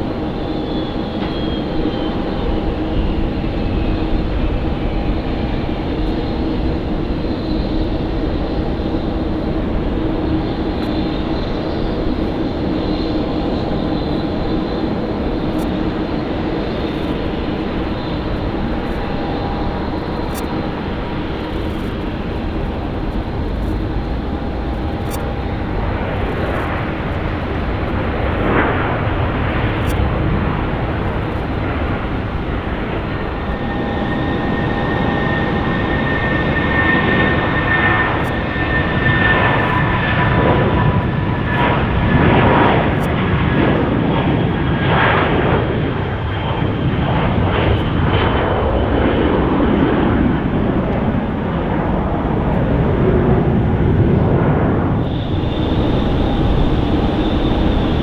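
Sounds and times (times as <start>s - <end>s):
jet engines running loud: 0.0s - 58.0s
thin whine falling in pitch: 55.0s - 58.0s.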